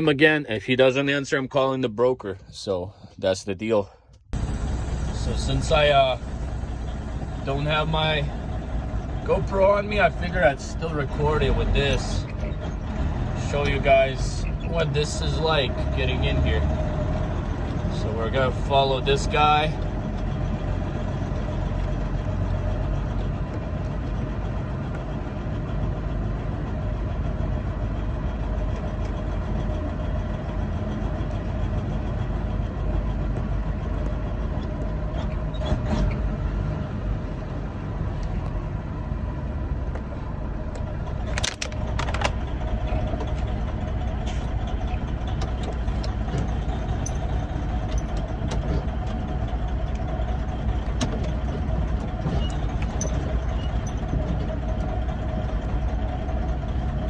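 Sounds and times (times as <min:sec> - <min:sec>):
diesel truck engine running: 0:04.3 - 0:57.0
sharp clicks or knocks: 0:40.8 - 0:42.5.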